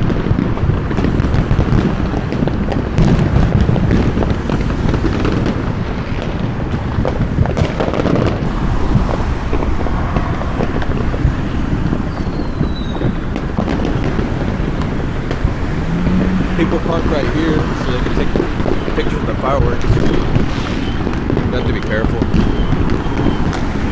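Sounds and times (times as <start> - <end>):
fireworks crackling and popping: 0.0 - 23.9
wind rumble on microphone: 0.0 - 23.9.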